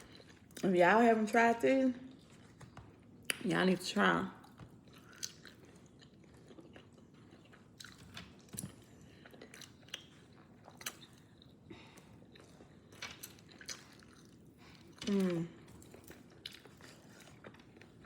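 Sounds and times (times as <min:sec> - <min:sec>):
chewing and biting fried chicken: 0:04.4 - 0:15.0, 0:15.6 - 0:18.0.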